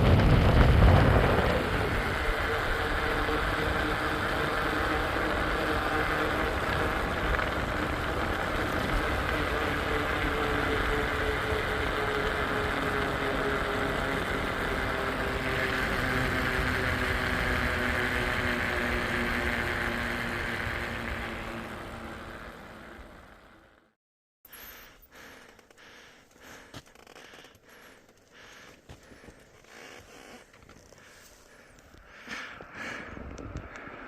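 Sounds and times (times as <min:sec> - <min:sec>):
bicycle tyre and wind noise: 0:00.0 - 0:34.0.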